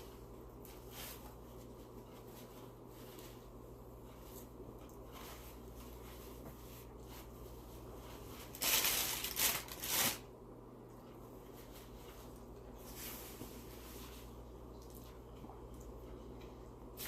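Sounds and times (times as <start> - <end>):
food packaging crinkling: 8.4 - 10.3.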